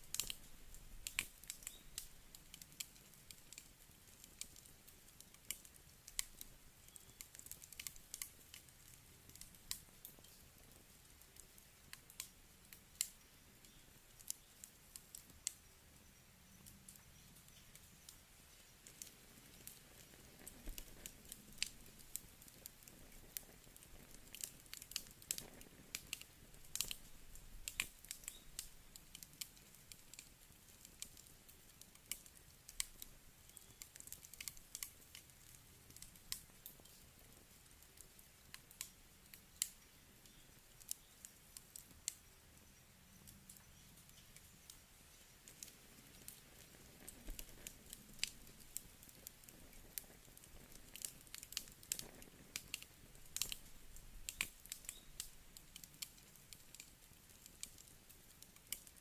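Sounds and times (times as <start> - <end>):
campfire crackling and popping: 0.0 - 59.0
low hiss of fire: 0.0 - 59.0.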